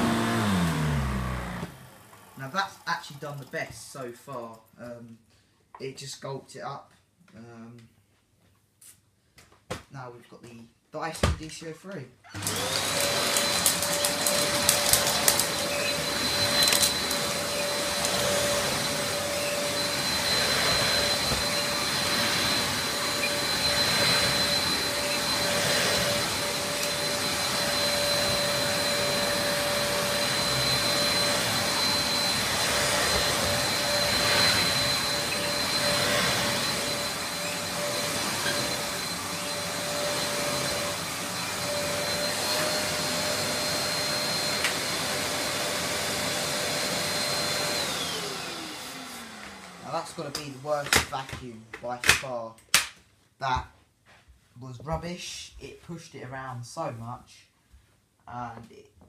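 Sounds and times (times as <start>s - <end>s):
vacuum cleaner on carpet: 0.0s - 3.5s, 12.3s - 52.2s.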